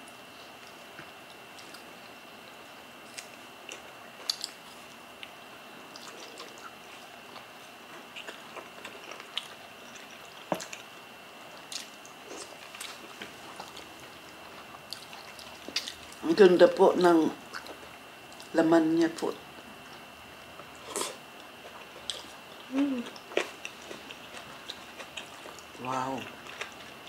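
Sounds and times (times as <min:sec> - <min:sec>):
wet chewing and lip-smacking: 0:03.1 - 0:10.9, 0:11.5 - 0:16.2, 0:17.5 - 0:18.5, 0:19.9 - 0:27.0.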